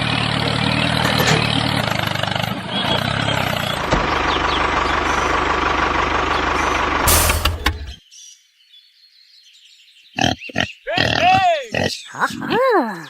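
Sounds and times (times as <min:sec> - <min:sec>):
machine motor running: 0:06.2 - 0:08.0.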